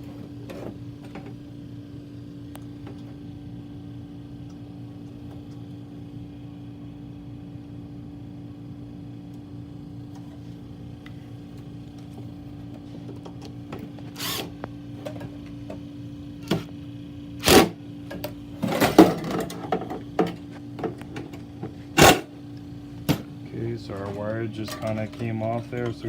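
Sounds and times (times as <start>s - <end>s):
steady hum: 0.0s - 26.0s
power driver rattling: 22.0s - 22.3s.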